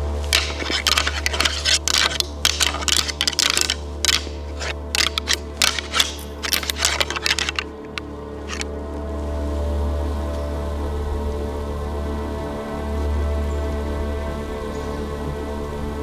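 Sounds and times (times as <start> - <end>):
rapid sharp clicks: 0.3 - 8.6.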